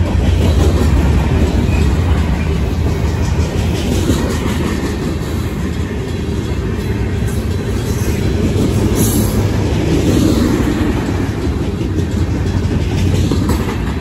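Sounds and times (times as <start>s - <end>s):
steel wheels rumbling on rails: 0.0s - 14.0s.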